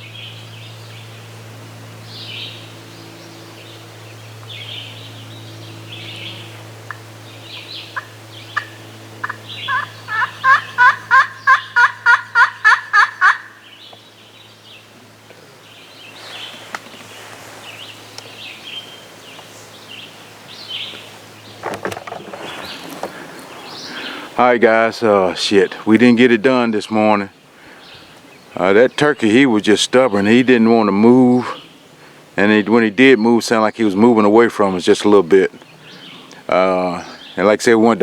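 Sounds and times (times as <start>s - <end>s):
small birds chirping: 2.0s - 38.0s
turkey yelping: 8.0s - 13.6s.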